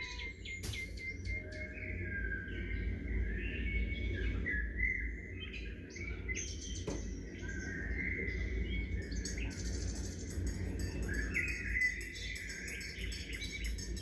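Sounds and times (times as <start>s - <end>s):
small birds chirping: 0.0s - 14.0s
low rumble: 0.6s - 3.4s.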